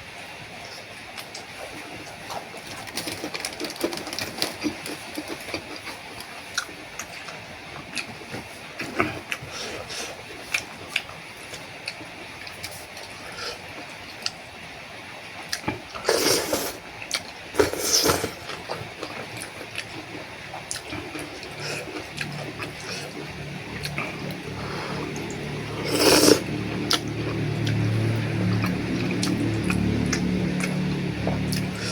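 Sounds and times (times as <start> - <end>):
person slurping soup: 16.0 - 16.8, 17.6 - 18.5, 20.8 - 27.1.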